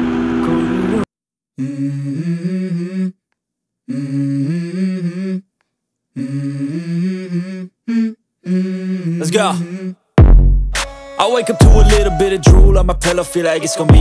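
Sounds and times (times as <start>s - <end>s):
person humming a melody: 1.6s - 3.2s, 3.9s - 5.5s, 6.2s - 10.0s, 11.2s - 14.0s.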